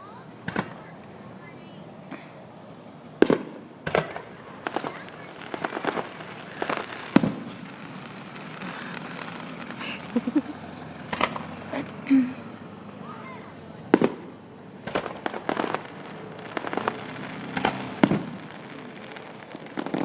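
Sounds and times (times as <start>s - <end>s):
fireworks bangs: 0.0s - 20.0s
fireworks crackling pops: 0.0s - 20.0s.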